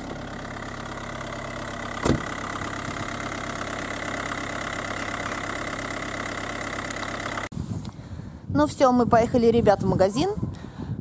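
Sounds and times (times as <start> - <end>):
car engine idling: 0.0 - 7.5
car door shutting: 1.9 - 2.6.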